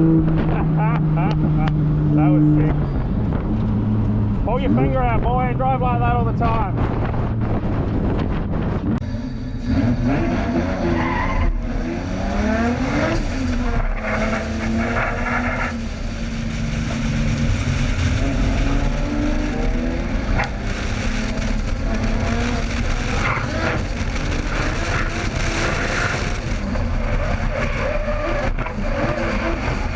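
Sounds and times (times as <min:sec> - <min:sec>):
car engine revving hard: 0:09.6 - 0:29.9.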